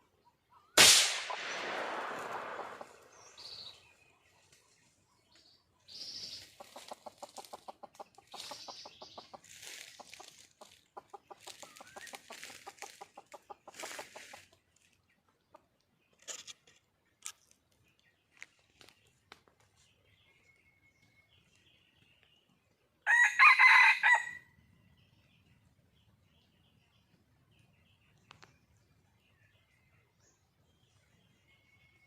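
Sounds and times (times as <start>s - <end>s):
hen clucking: 6.2s - 15.8s.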